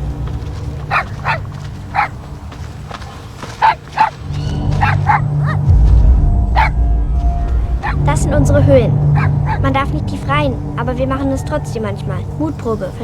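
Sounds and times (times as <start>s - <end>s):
low droning background music: 0.0s - 13.0s
dog barking and yipping: 0.8s - 2.2s, 3.4s - 5.7s, 7.8s - 8.0s, 9.1s - 9.7s.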